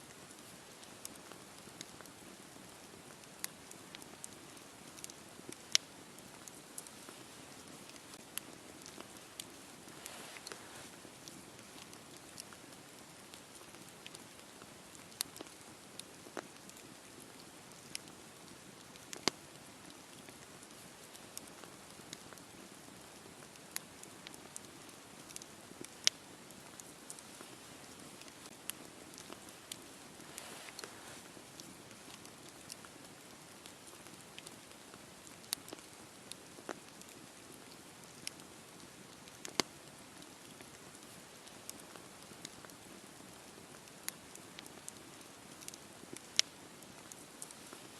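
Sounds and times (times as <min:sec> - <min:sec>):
campfire crackling and popping: 0:00.0 - 0:47.9.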